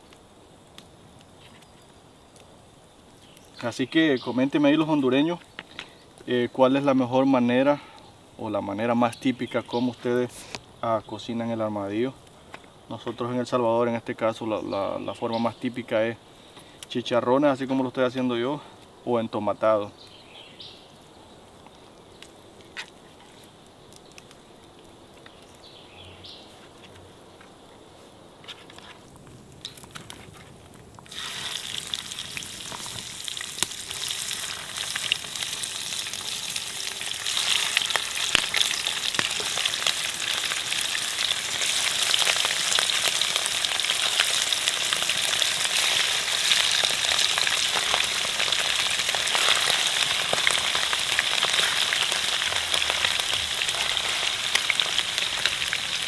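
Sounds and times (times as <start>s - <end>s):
meat sizzling in hot oil: 31.0s - 56.0s.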